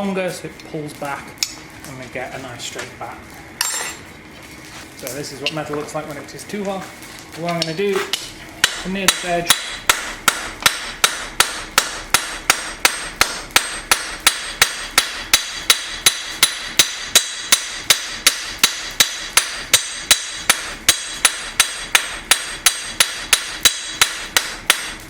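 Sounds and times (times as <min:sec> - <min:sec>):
hammer striking steel on anvil: 0:07.6 - 0:25.0.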